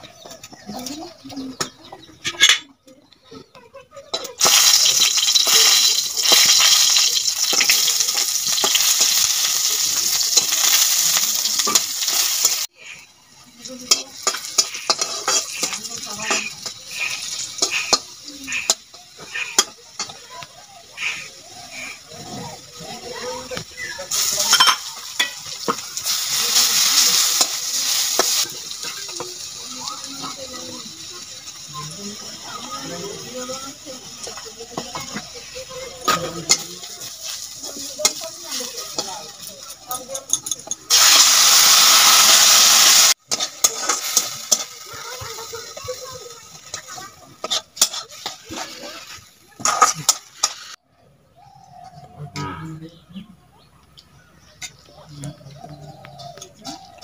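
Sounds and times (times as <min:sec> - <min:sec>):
garlic sizzling in hot oil: 0:04.2 - 0:50.8
metal spatula clinking on wok: 0:13.8 - 0:20.2, 0:38.0 - 0:40.9.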